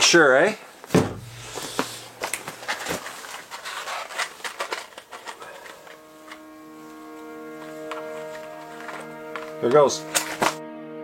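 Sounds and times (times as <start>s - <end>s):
music: 4.7s - 11.0s.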